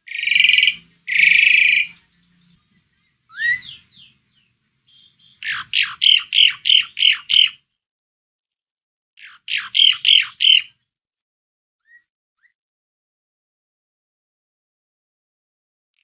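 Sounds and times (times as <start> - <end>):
starling harsh repeated calls: 0.0 - 7.6, 9.3 - 10.7.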